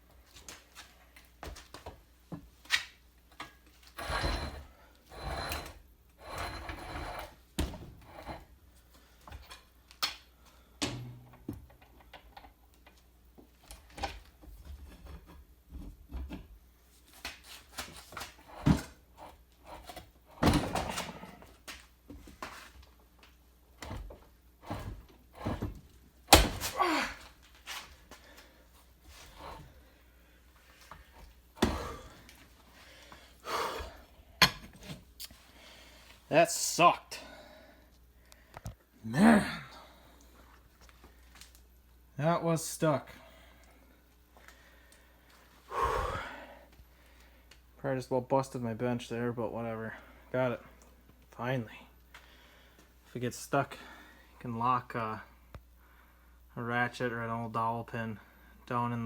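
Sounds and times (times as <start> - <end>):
metal scraping: 4.0 - 7.4
engine shifting on workbench: 23.8 - 26.6.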